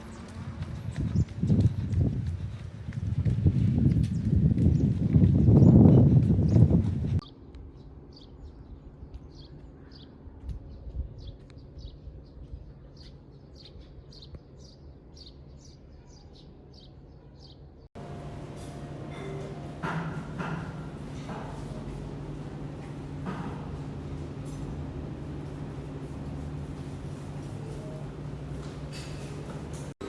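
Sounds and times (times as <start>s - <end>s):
loud steady hum: 18.0s - 29.9s.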